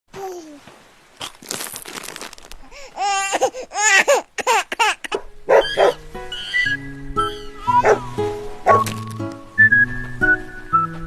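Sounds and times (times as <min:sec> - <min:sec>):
crackling rustle: 0:00.1 - 0:07.0, 0:07.6 - 0:11.0
music: 0:05.4 - 0:11.0
high laugh-like squeals: 0:05.5 - 0:07.8.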